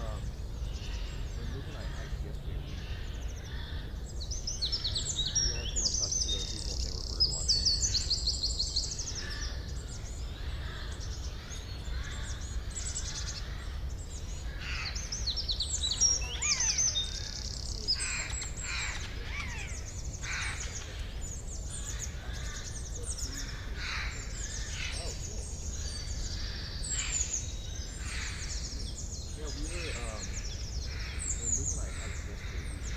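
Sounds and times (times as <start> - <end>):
songbirds singing: 0.0 - 32.9.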